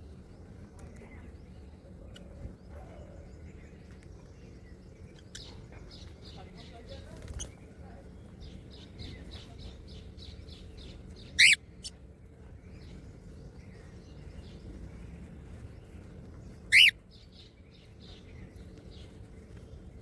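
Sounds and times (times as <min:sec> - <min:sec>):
parrot soft chirping: 0:10.9 - 0:12.0, 0:16.7 - 0:17.0
parrot shrill calls: 0:11.4 - 0:11.6, 0:16.7 - 0:17.0.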